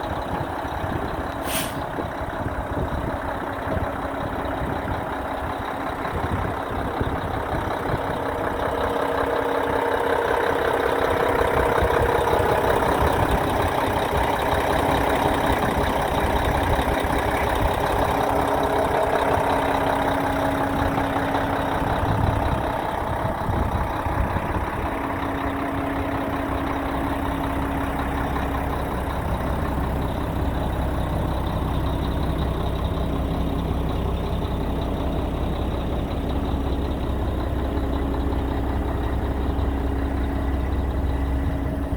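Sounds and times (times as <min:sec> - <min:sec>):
diesel truck engine idling: 0:00.0 - 0:41.9.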